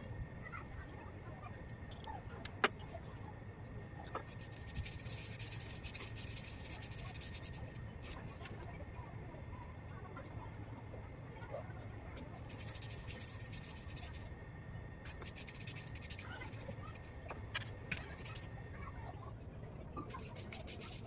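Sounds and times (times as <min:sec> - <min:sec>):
low steady hum: 0:00.0 - 0:21.0
chalk crunching: 0:04.2 - 0:08.2, 0:12.4 - 0:14.2, 0:15.1 - 0:16.7, 0:20.1 - 0:21.0.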